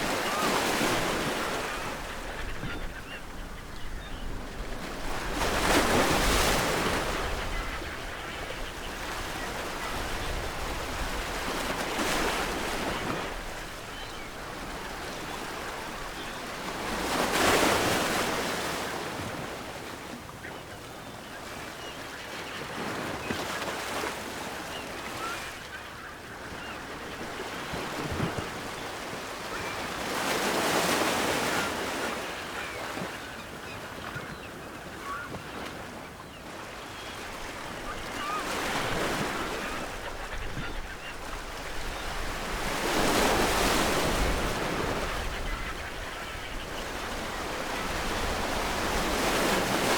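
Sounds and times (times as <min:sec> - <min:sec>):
ocean waves breaking on shore: 0:00.0 - 0:49.9.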